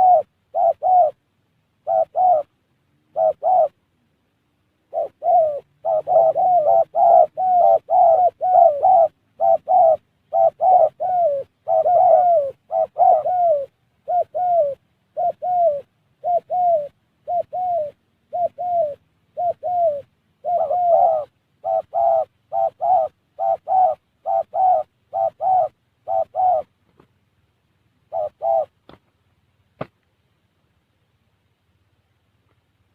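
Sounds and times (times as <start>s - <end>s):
dove cooing: 0.0s - 1.2s, 1.8s - 3.8s, 4.8s - 27.0s, 28.0s - 29.0s.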